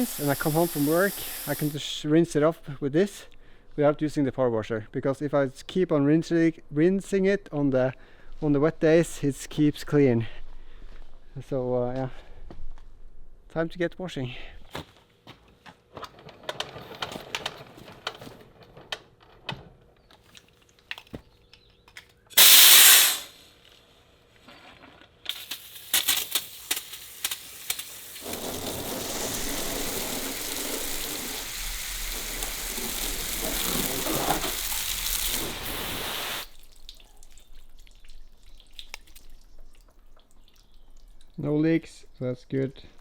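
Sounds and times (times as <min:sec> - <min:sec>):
water spraying from hose: 0:00.0 - 0:01.8, 0:22.4 - 0:23.4, 0:25.3 - 0:36.6.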